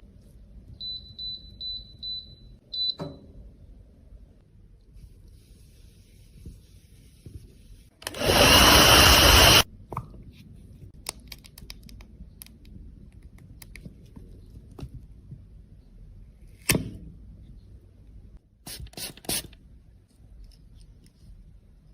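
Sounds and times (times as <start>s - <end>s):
loud electric whirring: 8.0s - 9.7s.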